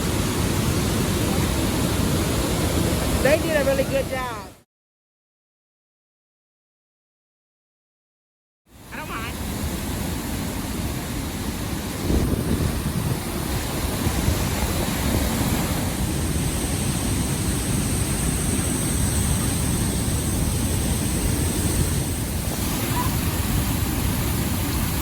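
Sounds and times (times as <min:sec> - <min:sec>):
waterfall roaring: 0:00.0 - 0:04.6, 0:22.3 - 0:25.0
wind buffeting microphone: 0:09.7 - 0:25.0.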